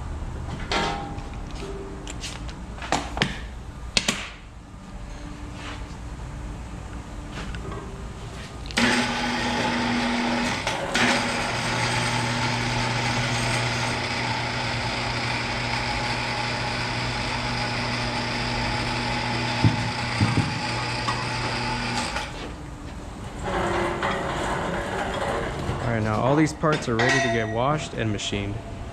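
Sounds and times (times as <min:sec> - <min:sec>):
small power tool motor running: 0:08.8 - 0:22.4.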